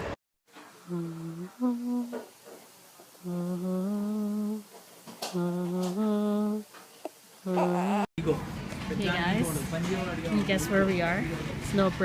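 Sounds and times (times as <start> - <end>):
person humming a tune: 0.8 - 2.2, 3.2 - 6.7, 7.4 - 8.1.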